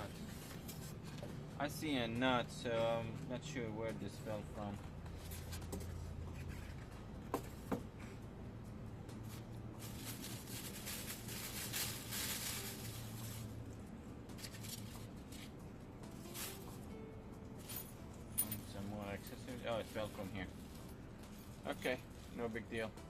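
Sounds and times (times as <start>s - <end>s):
packaging rustling: 9.8s - 13.5s.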